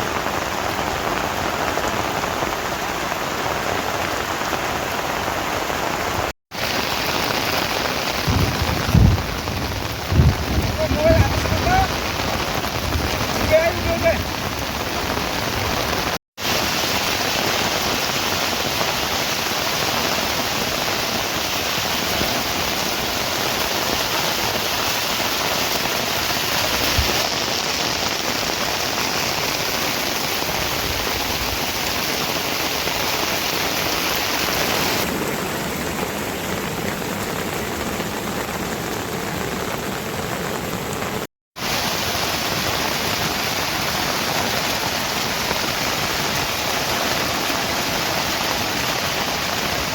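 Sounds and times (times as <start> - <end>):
heavy rain pattering: 0.0 - 49.9.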